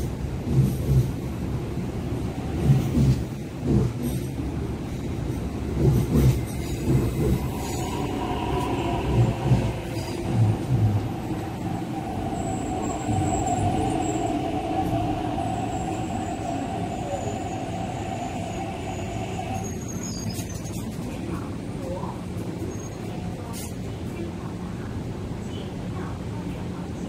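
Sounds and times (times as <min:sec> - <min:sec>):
electric train braking: 0:06.8 - 0:20.5.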